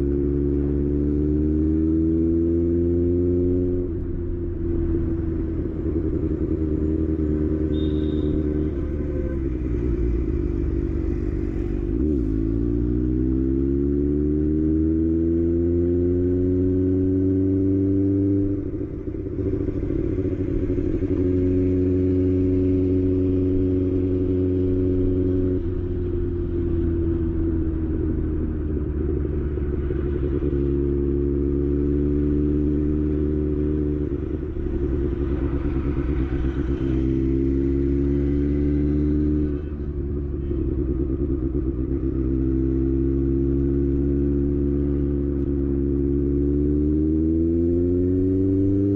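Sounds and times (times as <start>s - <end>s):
motorcycle engine idling: 7.7s - 11.4s.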